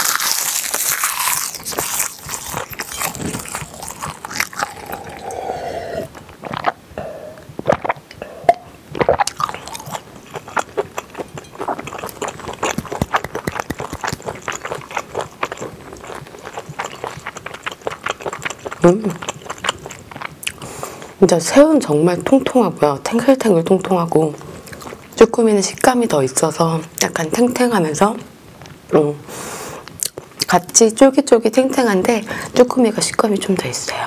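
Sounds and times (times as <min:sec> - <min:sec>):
crunching dry seaweed sheets: 0:00.0 - 0:05.0
wet chewing and smacking: 0:00.0 - 0:06.8, 0:07.6 - 0:21.2, 0:23.8 - 0:25.2
gulping water: 0:01.6 - 0:20.6.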